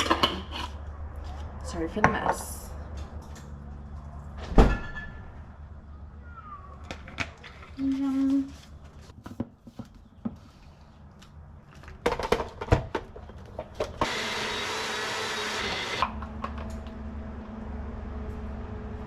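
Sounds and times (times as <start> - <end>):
blender blending: 14.0 - 16.1.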